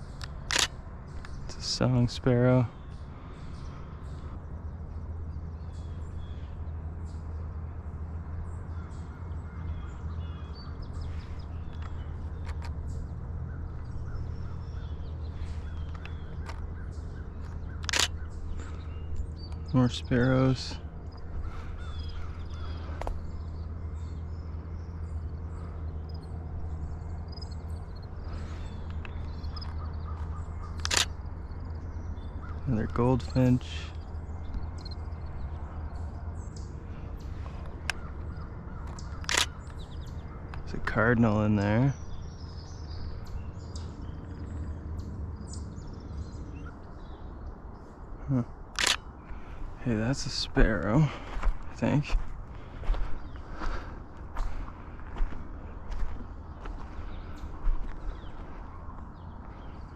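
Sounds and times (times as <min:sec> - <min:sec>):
sharp clicking: 0:00.0 - 0:01.4, 0:15.6 - 0:16.7, 0:17.4 - 0:19.7, 0:30.6 - 0:31.3, 0:37.6 - 0:40.7, 0:48.7 - 0:49.1
birds calling faintly: 0:00.0 - 0:59.9
songbirds chirping: 0:00.0 - 0:59.9
steady low rumble: 0:00.0 - 0:59.9.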